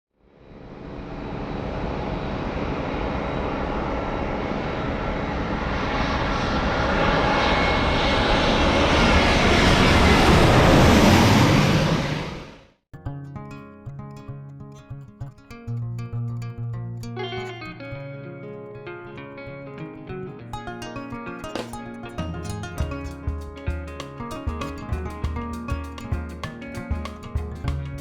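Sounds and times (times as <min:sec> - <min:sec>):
jet engines rushing: 0:00.6 - 0:12.7.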